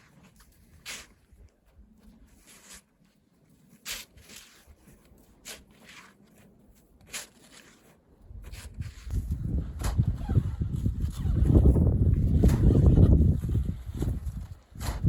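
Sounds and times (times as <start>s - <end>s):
crunching scrapes in snow: 0.0s - 15.0s
wind on microphone: 8.3s - 15.0s.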